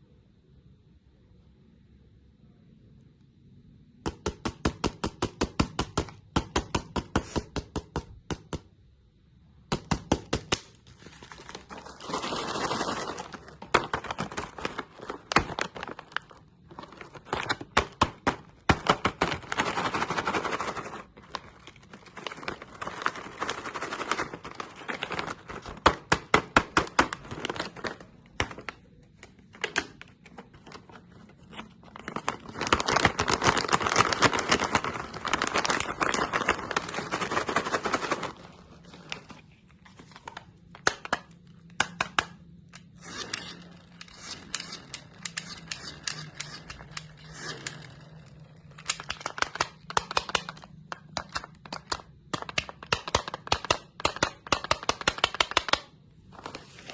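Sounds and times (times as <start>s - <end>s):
hard candy crunching: 10.6s - 56.1s.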